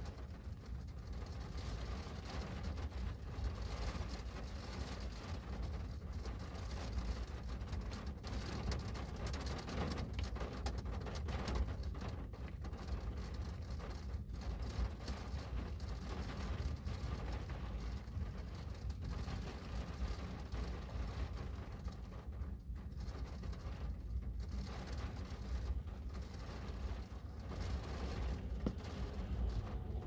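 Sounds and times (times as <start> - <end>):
rain on a window pane: 0.0 - 30.0
strong low rumble: 15.5 - 30.0.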